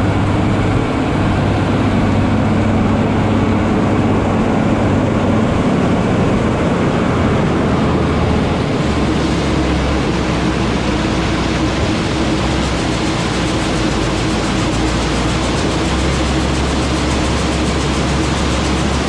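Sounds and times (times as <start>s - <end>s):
diesel farm machinery running: 0.0s - 19.0s.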